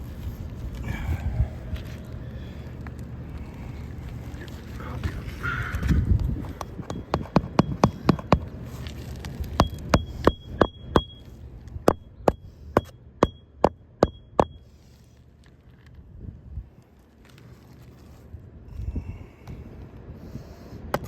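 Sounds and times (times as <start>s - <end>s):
hammer driving nails into shingles: 6.8s - 8.5s, 9.6s - 11.2s.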